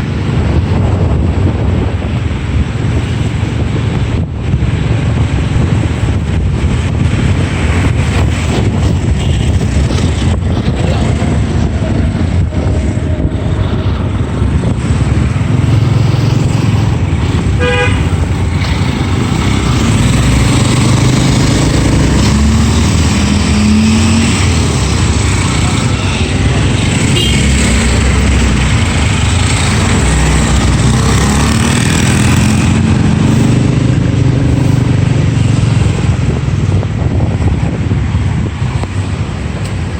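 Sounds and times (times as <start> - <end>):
road traffic: 0.0 - 39.9
wind buffeting microphone: 0.0 - 39.9
vehicle horn toot: 17.6 - 18.2, 27.1 - 27.6.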